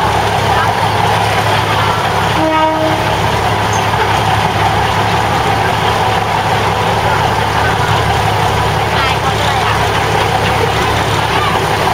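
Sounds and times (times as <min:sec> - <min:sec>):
diesel engine drone: 0:00.0 - 0:11.9
wheel and rail noise: 0:00.0 - 0:11.9
short train horn toot: 0:02.3 - 0:03.2.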